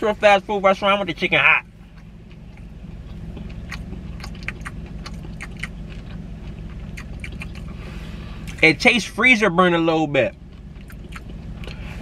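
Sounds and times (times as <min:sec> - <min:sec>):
car engine idling: 0:00.0 - 0:12.0
crunchy chewing and mouth clicks: 0:01.8 - 0:07.8, 0:08.4 - 0:08.6, 0:10.1 - 0:11.9.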